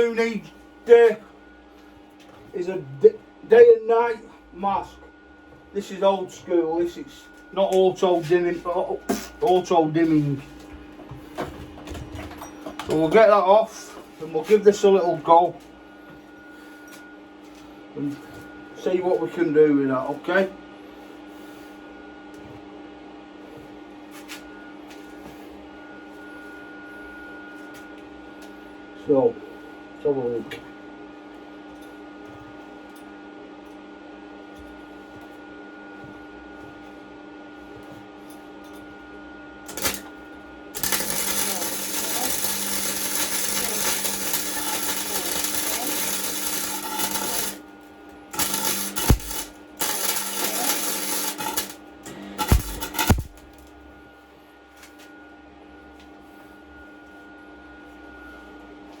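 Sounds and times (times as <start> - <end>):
arc welder crackling: 0.0 - 1.2, 39.6 - 53.8
steady electrical hum: 0.0 - 59.0.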